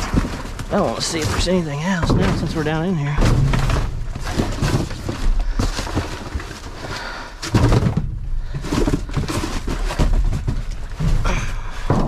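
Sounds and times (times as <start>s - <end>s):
junk clunking in metal dumpster: 1.4s - 5.2s.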